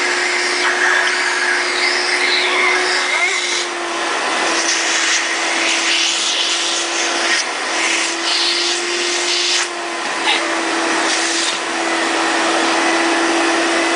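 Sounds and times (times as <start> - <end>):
vacuum cleaner running: 0.0 - 13.9.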